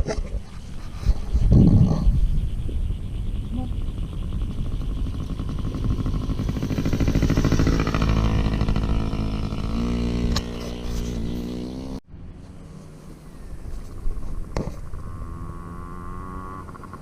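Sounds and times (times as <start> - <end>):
small two-stroke engine running: 3.2 - 12.0, 14.8 - 17.0.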